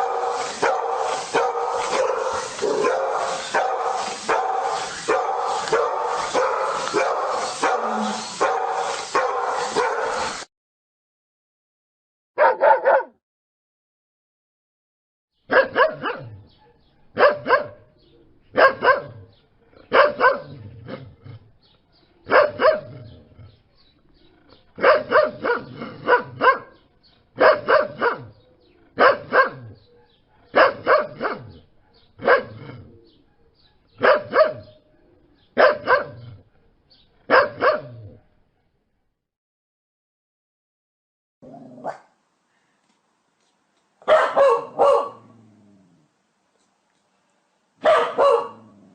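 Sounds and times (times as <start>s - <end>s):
dog barking: 0.0s - 10.4s, 12.4s - 13.2s, 15.5s - 17.9s, 18.6s - 19.3s, 19.9s - 20.6s, 22.3s - 22.9s, 24.8s - 26.8s, 27.4s - 28.3s, 29.0s - 32.6s, 34.0s - 34.8s, 35.6s - 36.2s, 37.3s - 38.0s, 41.8s - 42.2s, 44.0s - 45.3s, 47.8s - 48.9s.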